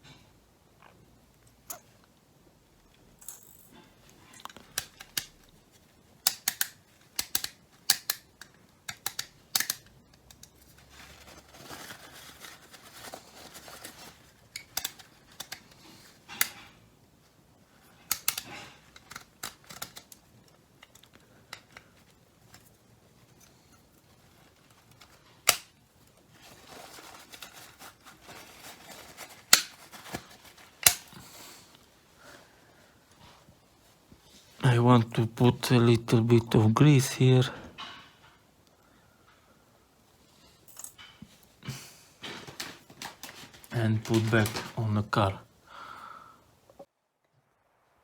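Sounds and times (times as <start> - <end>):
plastic clicks and snaps: 4.4 - 5.6, 6.2 - 10.6, 14.5 - 16.6, 18.0 - 21.9, 29.5 - 31.8.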